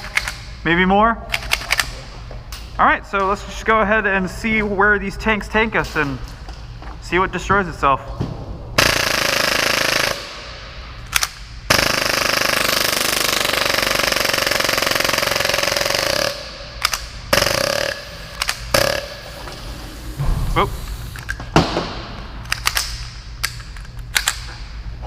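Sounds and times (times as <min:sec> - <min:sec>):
airsoft pistol firing rapid bursts: 0:08.8 - 0:10.4, 0:11.7 - 0:16.5, 0:17.3 - 0:18.0.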